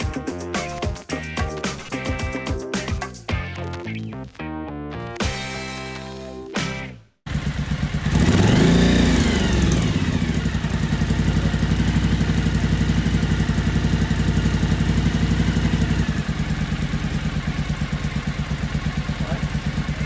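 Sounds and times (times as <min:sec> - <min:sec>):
motorcycle engine idling: 0:07.3 - 0:20.0.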